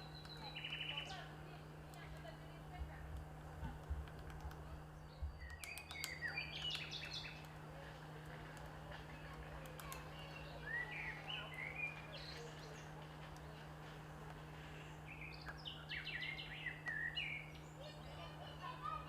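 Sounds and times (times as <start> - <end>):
bird chirping: 0.0 - 1.2, 4.9 - 7.5, 10.2 - 13.5, 14.8 - 18.3
steady low hum: 0.0 - 19.0
sharp clicks: 3.8 - 4.7, 5.4 - 7.6, 9.5 - 10.3.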